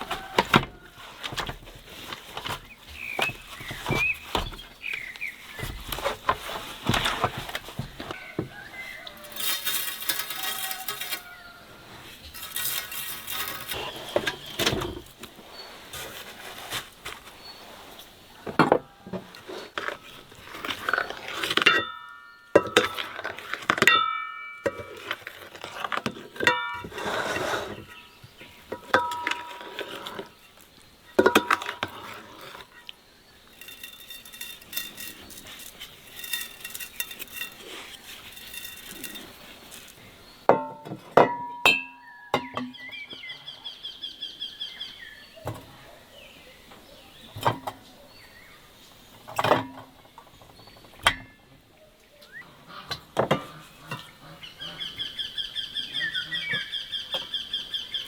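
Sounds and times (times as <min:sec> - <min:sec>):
dishes and utensils clinking: 0:05.6 - 0:11.6, 0:12.2 - 0:15.1, 0:18.4 - 0:27.9, 0:28.6 - 0:30.3, 0:31.2 - 0:32.7, 0:33.5 - 0:42.8.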